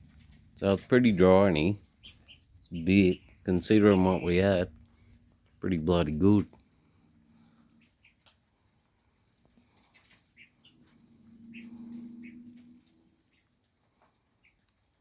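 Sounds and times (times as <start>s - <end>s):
guinea fowl chirping: 1.1s - 4.7s, 7.6s - 8.4s, 9.8s - 13.6s, 14.3s - 14.7s
low hum: 10.9s - 13.0s.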